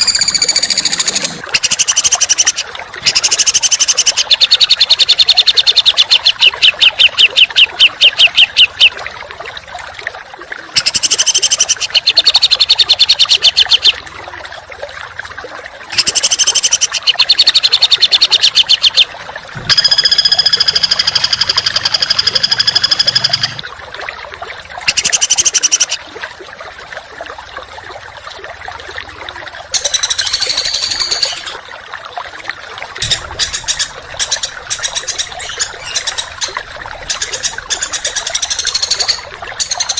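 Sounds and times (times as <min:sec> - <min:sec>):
songbird singing rapid high notes: 0:00.0 - 0:08.9, 0:10.8 - 0:14.0, 0:16.0 - 0:19.1.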